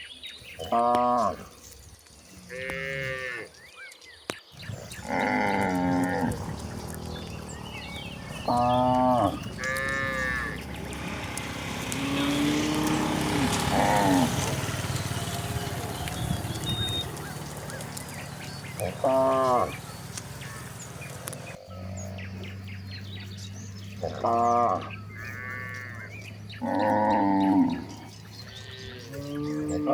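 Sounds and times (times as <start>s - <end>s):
cattle mooing: 2.5s - 3.5s, 4.8s - 21.2s, 24.0s - 29.9s.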